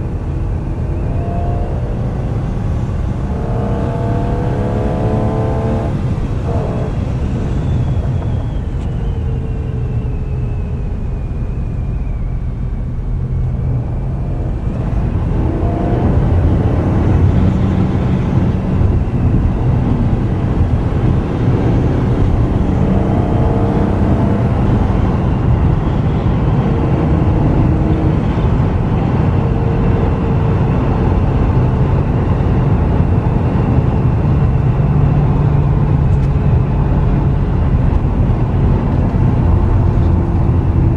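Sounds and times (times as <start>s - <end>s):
car engine running: 0.0s - 10.2s, 12.9s - 40.9s
thin whine: 0.0s - 30.3s.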